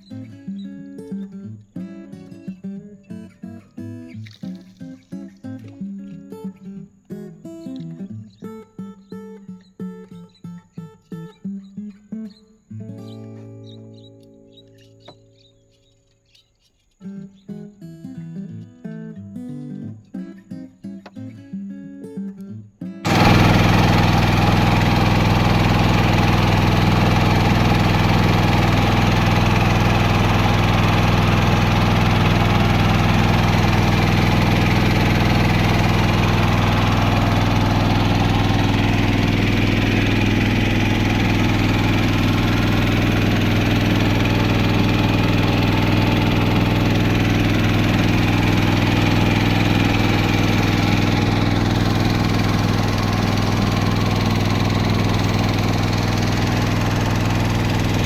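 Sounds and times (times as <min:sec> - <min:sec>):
small boat engine running: 0:23.1 - 0:58.0.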